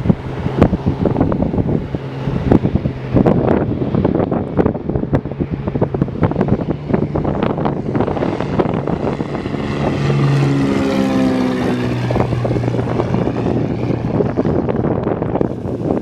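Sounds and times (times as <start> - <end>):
aircraft passing close by: 0.0 - 16.0
wind buffeting microphone: 0.0 - 16.0.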